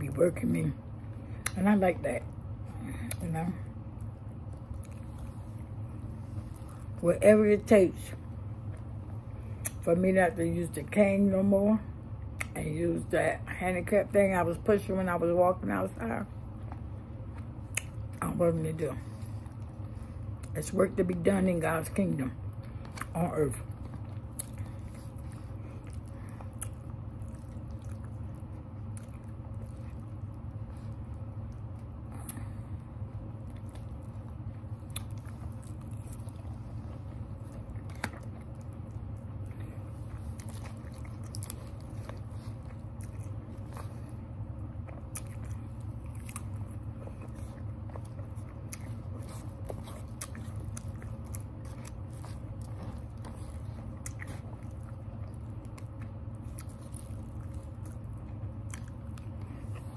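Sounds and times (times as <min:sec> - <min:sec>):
steady low hum: 0:00.0 - 0:59.9
person chewing food: 0:03.9 - 0:07.0, 0:16.6 - 0:18.2, 0:22.6 - 0:59.9.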